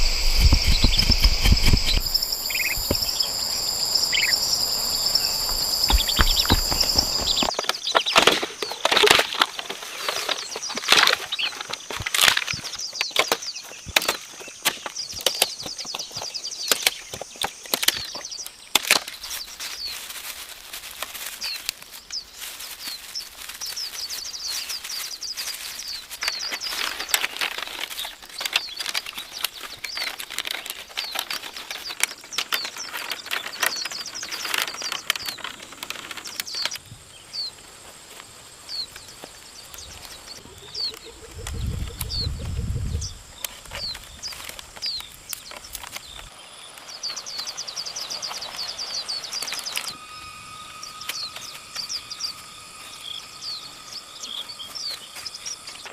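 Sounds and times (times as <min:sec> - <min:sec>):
low rumble: 0:00.0 - 0:07.5
bird chirping: 0:00.0 - 0:08.9, 0:21.4 - 0:37.7, 0:38.6 - 0:55.9
wood being chopped: 0:05.8 - 0:09.5.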